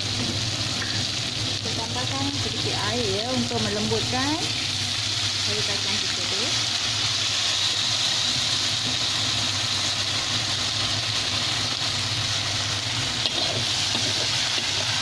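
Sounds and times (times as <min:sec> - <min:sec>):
beans sizzling in a wok: 0:00.0 - 0:15.0
metal spatula stirring: 0:13.2 - 0:14.9.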